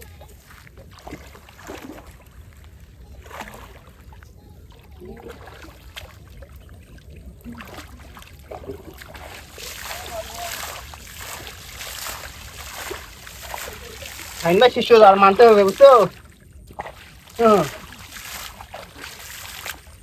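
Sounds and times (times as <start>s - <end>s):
river water lapping and trickling: 0.0s - 20.0s
small water splashes: 0.0s - 20.0s.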